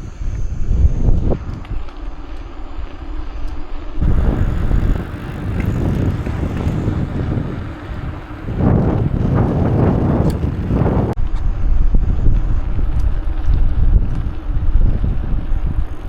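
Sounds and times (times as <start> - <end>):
wind buffeting microphone: 4.0 - 16.0.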